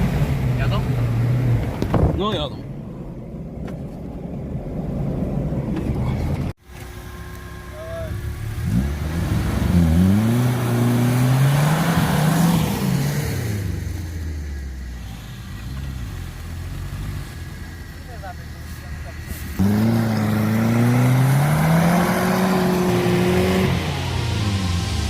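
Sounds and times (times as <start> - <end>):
engine revving: 7.7 - 14.4, 19.2 - 25.0.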